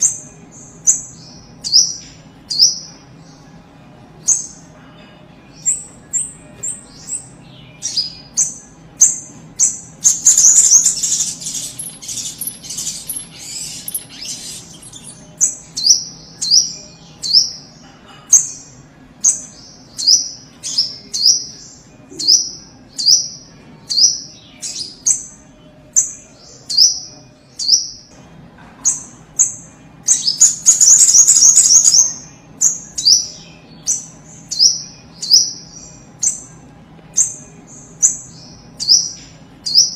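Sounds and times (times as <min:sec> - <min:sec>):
bird rapid chattering notes: 0:05.6 - 0:17.8, 0:28.8 - 0:36.6.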